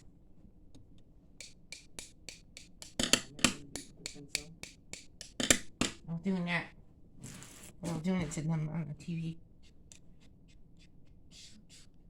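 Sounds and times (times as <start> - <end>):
sharp snapping clicks: 1.4 - 5.8.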